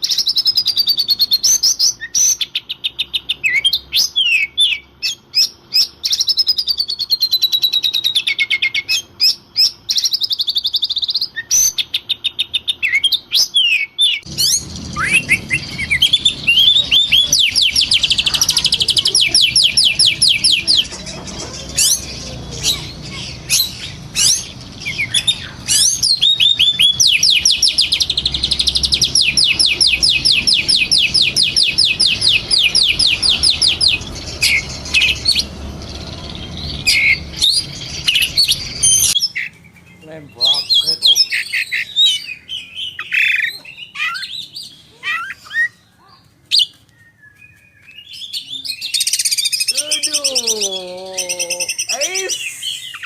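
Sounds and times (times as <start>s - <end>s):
bird singing trills: 0.0s - 53.0s
steady background noise: 2.6s - 53.0s.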